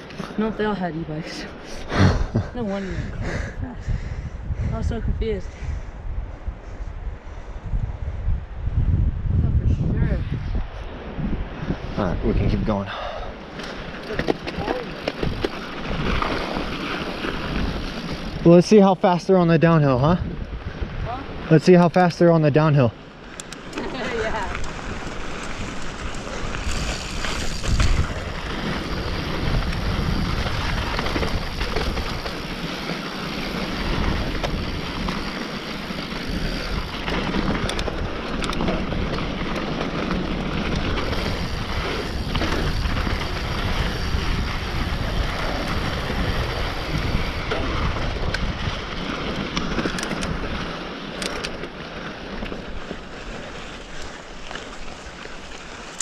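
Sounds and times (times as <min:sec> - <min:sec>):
wind rushing over microphone: 0:00.0 - 0:50.9
bike clicks and rattles: 0:13.5 - 0:18.6, 0:23.2 - 0:56.0
tyres rolling over dirt: 0:13.5 - 0:19.8, 0:23.6 - 0:56.0.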